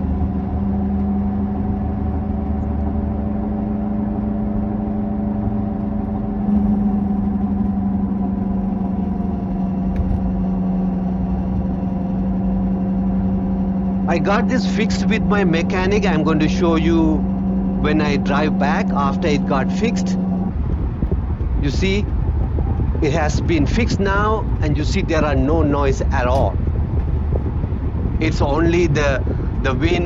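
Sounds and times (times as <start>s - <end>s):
road noise: 0.0s - 30.0s
wheel bearing growling hum: 0.0s - 30.0s.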